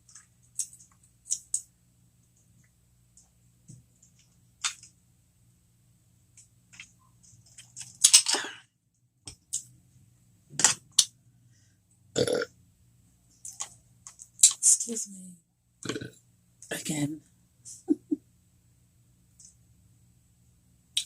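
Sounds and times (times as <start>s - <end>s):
wet mouth clicks and smacks: 0.5s - 1.7s
woman burping: 12.2s - 12.5s.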